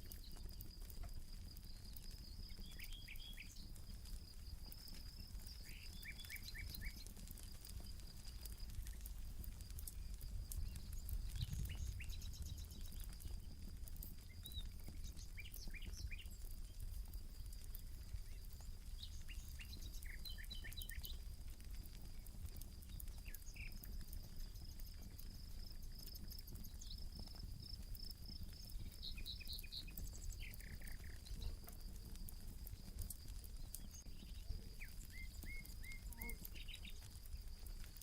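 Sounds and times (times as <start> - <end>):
campfire crackling: 0.0 - 38.0
insect trill: 0.0 - 38.0
birds chirping: 1.8 - 21.3, 25.9 - 32.0, 32.6 - 37.3.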